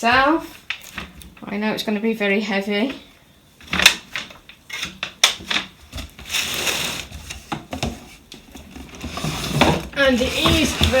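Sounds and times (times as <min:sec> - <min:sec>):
cardboard and plastic scraping: 0:03.7 - 0:11.0.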